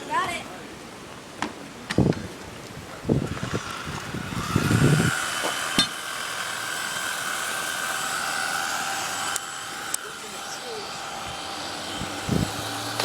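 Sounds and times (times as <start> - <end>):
engine whine: 3.0 - 13.0.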